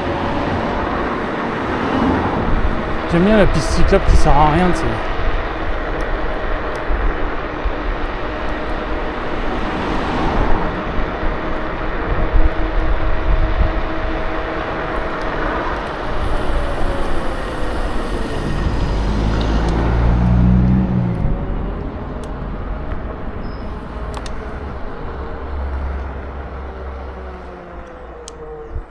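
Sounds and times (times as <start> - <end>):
road rumble: 6.8 - 28.7
low vehicle hum: 15.9 - 28.3.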